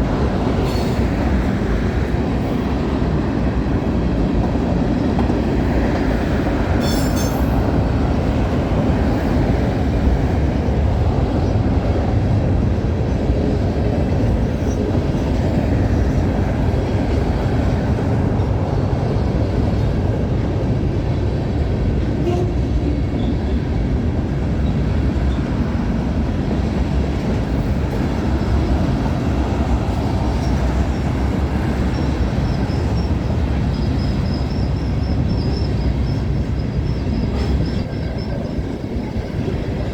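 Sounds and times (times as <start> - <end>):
train wheels rumbling on rail: 0.0 - 39.9
high wheel squeal: 6.8 - 7.6, 31.8 - 38.6.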